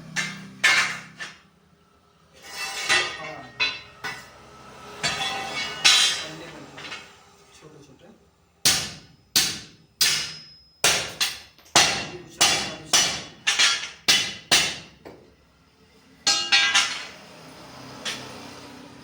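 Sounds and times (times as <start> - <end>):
hammer striking steel: 0.0 - 1.4, 8.6 - 15.2, 16.2 - 17.2.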